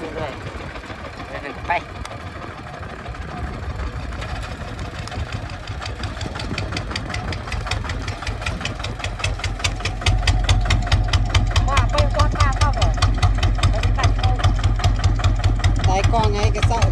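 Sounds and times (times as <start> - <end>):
diesel engine knocking: 0.0 - 16.9.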